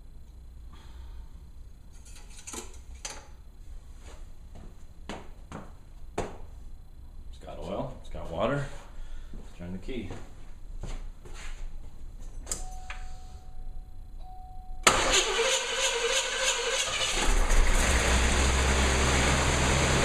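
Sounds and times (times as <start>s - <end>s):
car engine running: 17.4s - 20.0s.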